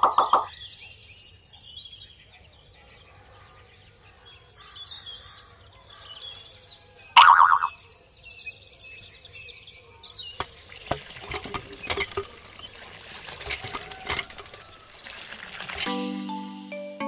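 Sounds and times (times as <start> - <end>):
birds chirping: 0.0 - 15.8
sharp clicks and light knocks: 10.4 - 14.8.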